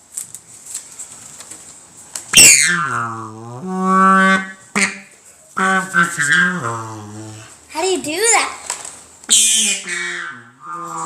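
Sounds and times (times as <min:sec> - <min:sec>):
horn-like notes blown with lips: 0:02.4 - 0:07.6, 0:09.3 - 0:11.0.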